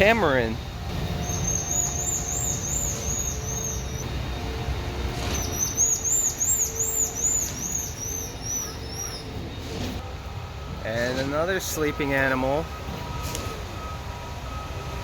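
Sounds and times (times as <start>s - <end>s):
tamarin chirping whistles: 1.2s - 4.0s, 5.4s - 9.4s.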